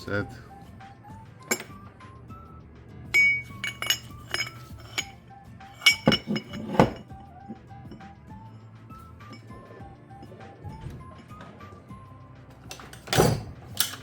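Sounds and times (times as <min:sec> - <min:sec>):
light background music: 0:00.0 - 0:14.0
metal parts and tools clinking: 0:01.4 - 0:01.8, 0:03.2 - 0:08.0, 0:12.6 - 0:14.0.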